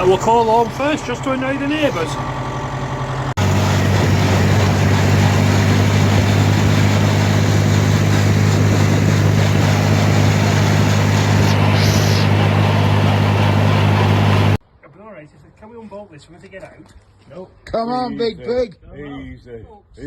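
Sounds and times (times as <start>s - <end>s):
vehicle engine running steadily: 0.0s - 14.6s
brief hiss: 11.2s - 12.4s.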